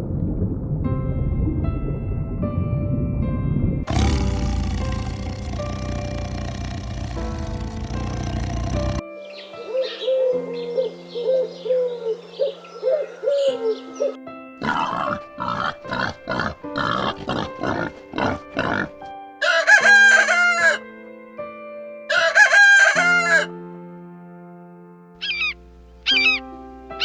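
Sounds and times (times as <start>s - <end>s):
rooster crowing: 19.4s - 20.8s, 22.1s - 23.5s.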